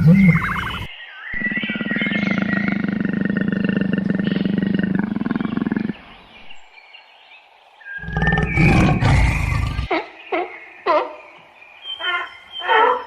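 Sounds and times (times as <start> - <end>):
large animal rasping growl: 8.0 - 9.9.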